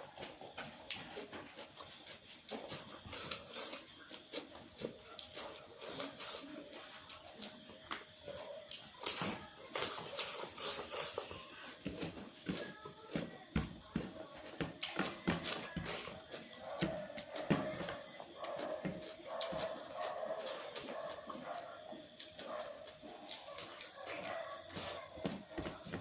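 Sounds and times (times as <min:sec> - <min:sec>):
person chewing and lip smacking: 0:14.8 - 0:25.2.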